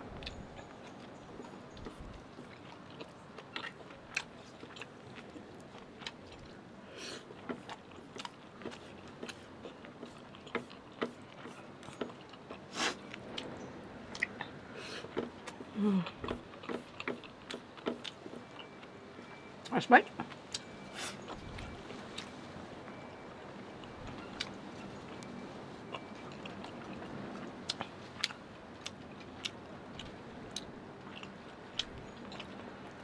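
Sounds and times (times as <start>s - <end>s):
wet chewing and mouth smacking: 0.1s - 13.5s, 14.1s - 23.2s, 23.8s - 33.0s.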